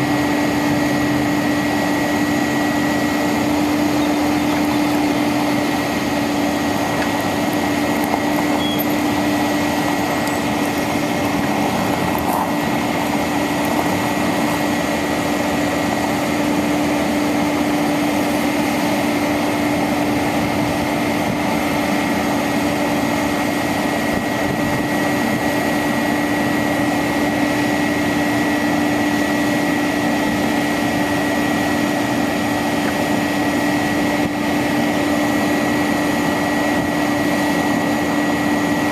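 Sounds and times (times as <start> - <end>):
constant whine: 0.0 - 38.9
diesel engine running: 0.0 - 38.9.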